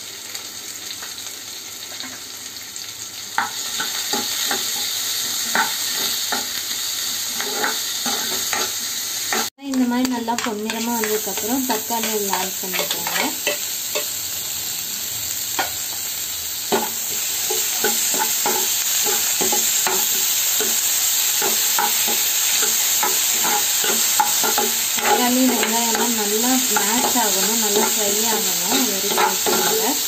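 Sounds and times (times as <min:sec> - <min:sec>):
vegetables sizzling in hot oil: 0:00.0 - 0:30.0
metal spatula scraping a pan: 0:07.2 - 0:09.5, 0:10.4 - 0:14.1, 0:16.7 - 0:30.0.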